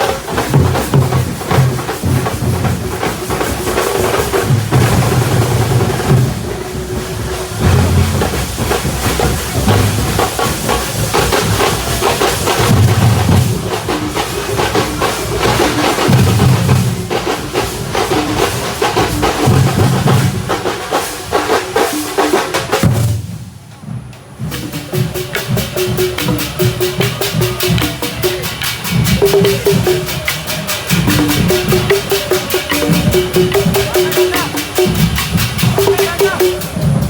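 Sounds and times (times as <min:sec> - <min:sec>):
fast dense drumming: 0:00.0 - 0:23.5, 0:24.5 - 0:37.0
deep beats: 0:24.4 - 0:37.0.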